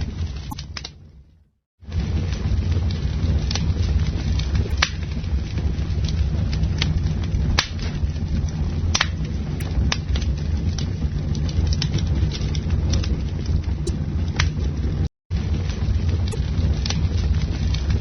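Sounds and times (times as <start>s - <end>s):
campfire rumble: 0.0s - 18.0s
fire crackles and pops: 1.8s - 18.0s.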